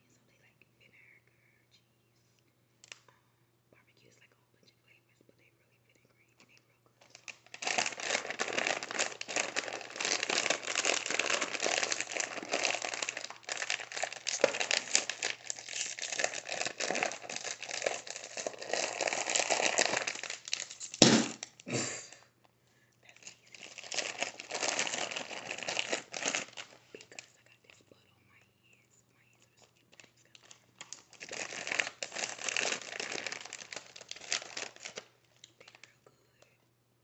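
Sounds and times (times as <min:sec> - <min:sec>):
crinkling and crackling of eating: 0:03.9 - 0:36.7.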